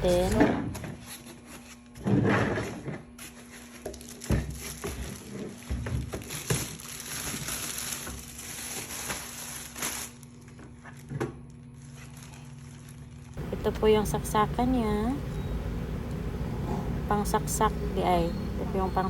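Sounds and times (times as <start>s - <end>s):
plastic and cardboard crinkling: 0.0s - 13.4s.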